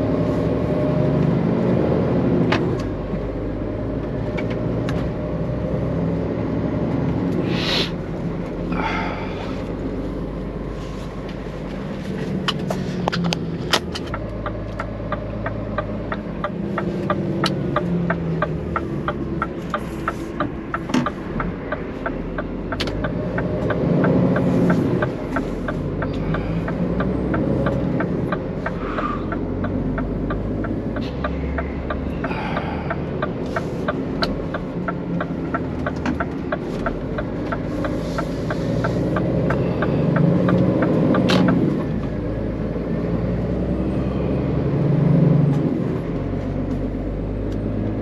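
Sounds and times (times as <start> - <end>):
truck engine droning: 0.0 - 48.0
sharp clicks and knocks: 11.3 - 42.2
regular ticking: 12.3 - 43.0.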